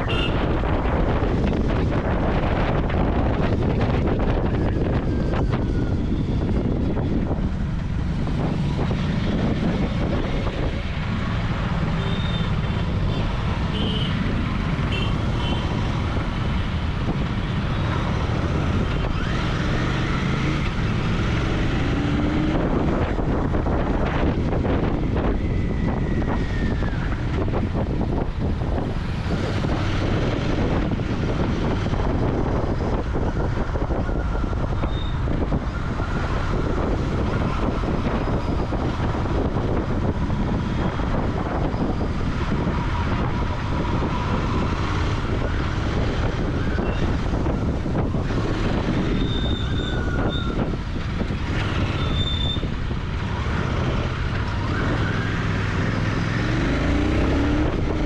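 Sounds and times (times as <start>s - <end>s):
motorcycle engine on the move: 0.0s - 58.0s
wind noise on microphone: 0.0s - 58.0s.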